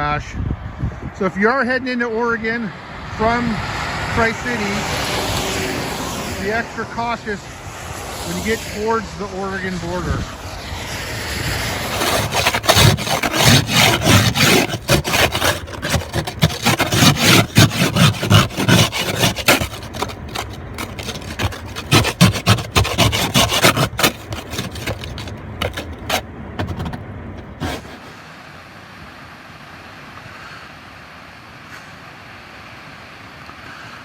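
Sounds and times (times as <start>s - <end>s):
rapid scraping and rubbing: 11.9s - 28.2s.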